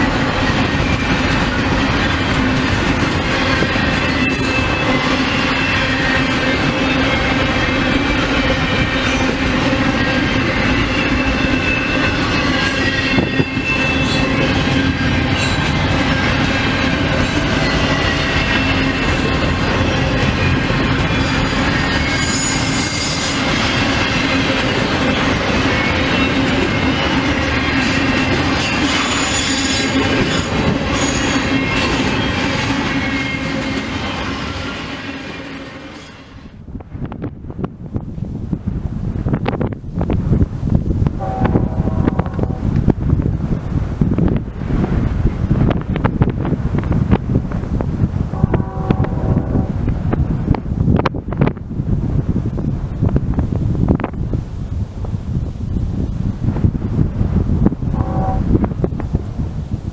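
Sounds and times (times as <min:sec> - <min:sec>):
wind buffeting microphone: 0:00.0 - 0:35.4, 0:36.4 - 0:59.9
freight train wheels on rails: 0:00.0 - 0:59.9
faint wheel squeal: 0:21.2 - 0:23.5.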